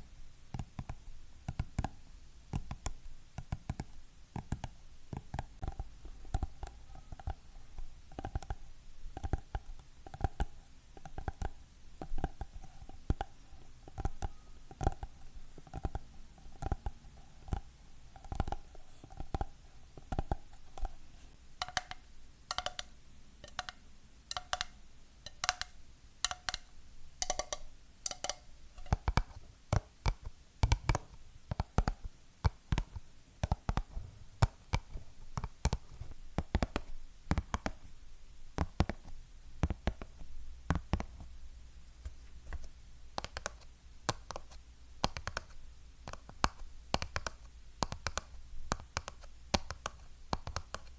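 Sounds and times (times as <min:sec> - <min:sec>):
faint ringing tone: 0:14.3 - 0:14.8
fingernails tapping on hard objects: 0:21.6 - 0:24.7, 0:25.3 - 0:37.8, 0:42.5 - 0:45.5, 0:46.1 - 0:50.9.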